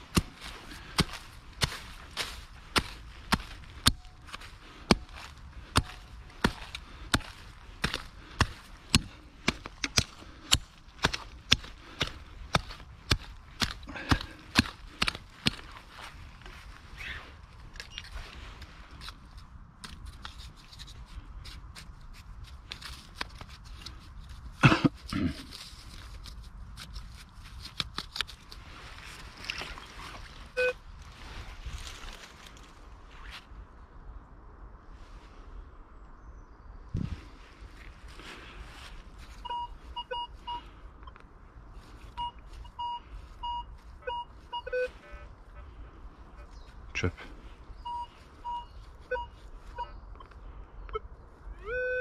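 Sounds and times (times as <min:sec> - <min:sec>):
coil rustling against ground cover: 0:00.0 - 0:33.5
metal detector beeps: 0:17.8 - 0:18.2, 0:30.5 - 0:30.8, 0:39.4 - 0:41.2, 0:42.1 - 0:45.3, 0:47.8 - 0:51.0, 0:51.6 - 0:52.0.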